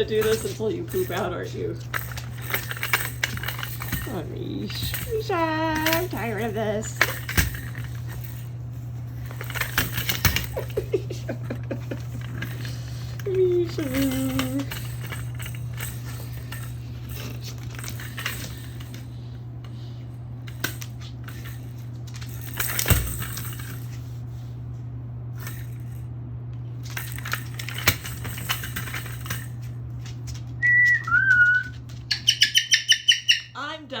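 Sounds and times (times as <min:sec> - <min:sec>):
steady low hum: 0:00.0 - 0:34.0
toy car clicking and rattling: 0:11.8 - 0:16.2
cockatoo whistles: 0:30.6 - 0:33.5.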